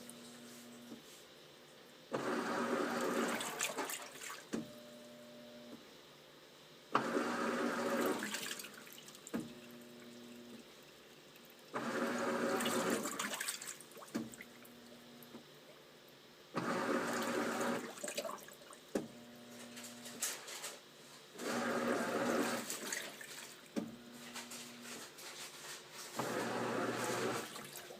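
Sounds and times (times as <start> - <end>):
washing machine motor hum: 0.0 - 1.2, 2.1 - 5.7, 6.9 - 27.9
water churning: 11.4 - 14.7.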